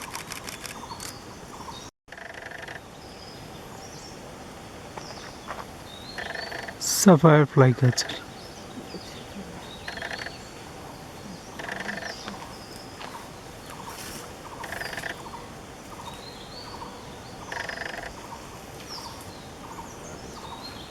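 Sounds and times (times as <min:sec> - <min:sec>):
rapid rattling bird call: 0:00.0 - 0:02.9, 0:06.0 - 0:06.9, 0:07.8 - 0:20.7.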